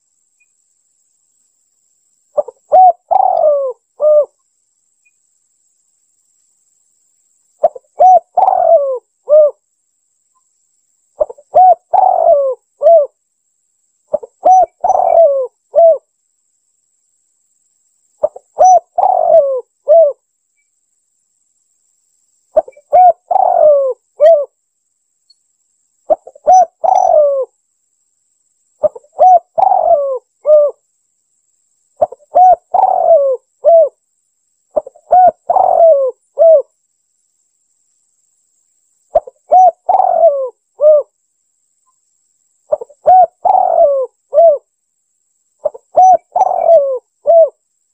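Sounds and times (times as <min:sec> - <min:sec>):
dove cooing: 0:02.4 - 0:04.4, 0:07.6 - 0:09.6, 0:11.2 - 0:13.2, 0:14.1 - 0:16.0, 0:18.2 - 0:20.2, 0:22.6 - 0:24.6, 0:26.1 - 0:27.5, 0:28.8 - 0:30.8, 0:32.0 - 0:34.0, 0:34.8 - 0:36.7, 0:39.1 - 0:41.1, 0:42.7 - 0:44.7, 0:45.6 - 0:47.6.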